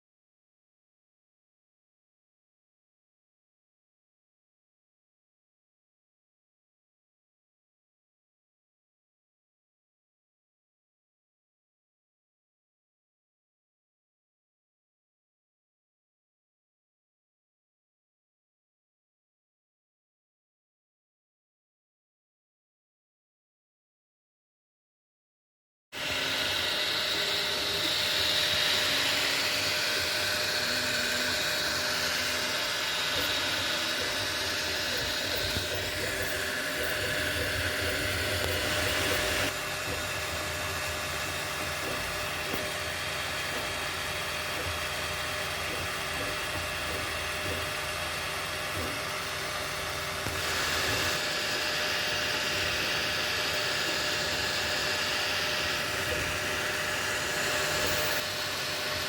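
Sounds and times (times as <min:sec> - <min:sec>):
cooling fans whirring: 0:26.0 - 0:59.0
stepper motor tones: 0:26.0 - 0:59.0.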